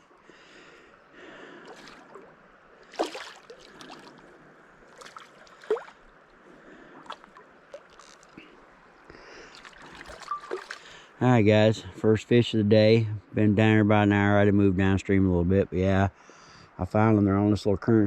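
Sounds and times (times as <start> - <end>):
river water running over rocks: 0.8 - 11.2
short sharp water splashes: 1.7 - 4.3, 4.9 - 6.1, 7.0 - 8.4, 9.4 - 11.0.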